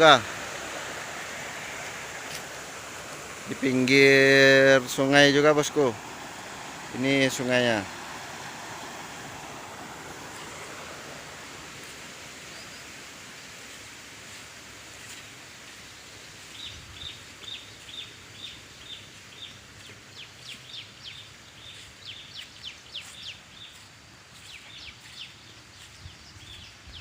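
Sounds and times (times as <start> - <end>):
bird chirping: 12.4 - 12.9, 16.2 - 27.0.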